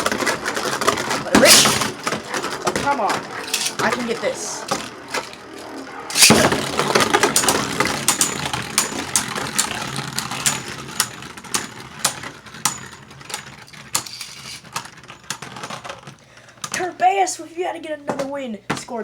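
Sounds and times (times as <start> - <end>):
tops clacking together: 0.0 - 5.4, 6.1 - 16.1
spinning tops whirring: 0.0 - 15.4.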